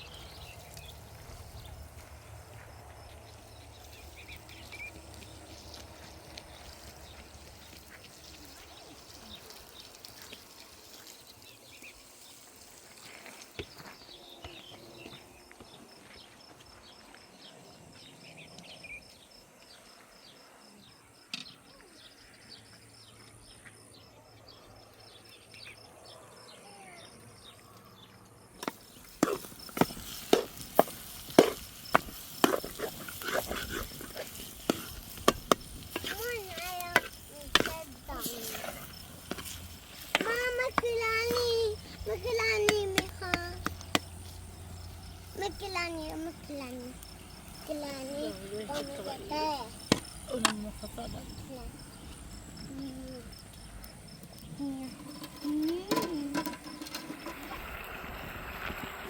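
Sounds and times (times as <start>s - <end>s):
insect trill: 24.7s - 59.0s.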